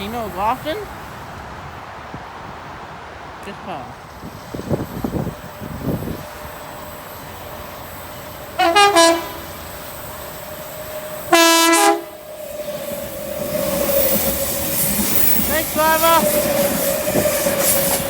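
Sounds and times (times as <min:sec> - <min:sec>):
train noise: 0:00.0 - 0:18.0
train horn blasts: 0:08.6 - 0:09.6, 0:11.3 - 0:12.2.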